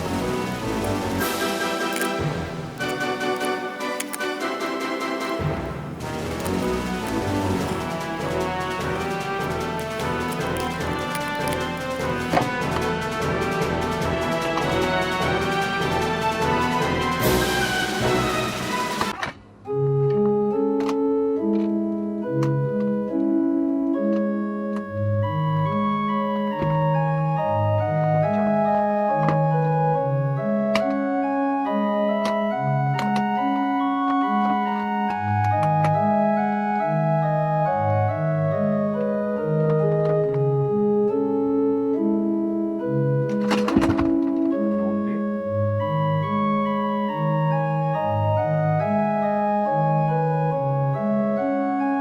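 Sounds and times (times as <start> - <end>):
sharp clicks: 0.0 - 12.5
organ-like keyboard music: 0.0 - 52.0.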